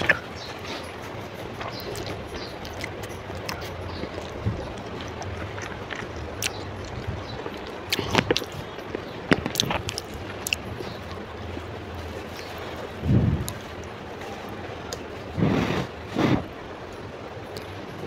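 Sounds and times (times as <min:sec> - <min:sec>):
chewing noodles: 0:00.0 - 0:14.0
wet mouth clicks: 0:01.6 - 0:08.7, 0:09.4 - 0:10.7.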